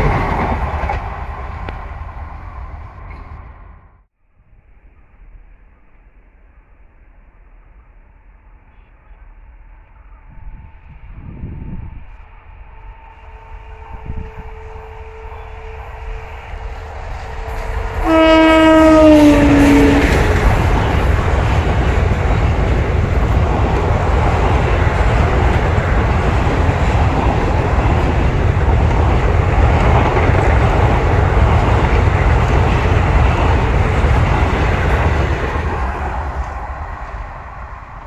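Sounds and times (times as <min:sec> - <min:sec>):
train wheels rumbling on rails: 0:00.0 - 0:03.8, 0:09.1 - 0:38.0
train horn: 0:13.1 - 0:20.6.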